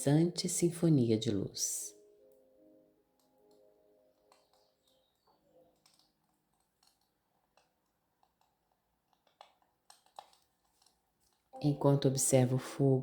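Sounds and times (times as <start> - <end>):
faint scattered crackles: 2.0 - 11.9
soft held music tones: 10.3 - 13.0.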